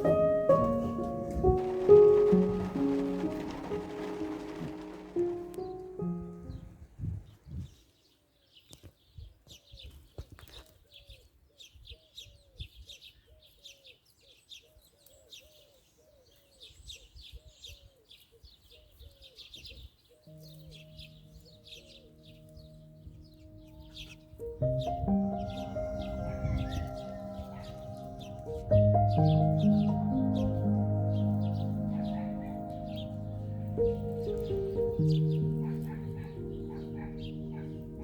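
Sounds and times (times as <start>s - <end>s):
steady music tones: 0.0s - 6.8s, 20.4s - 38.0s
small birds chirping: 0.0s - 38.0s.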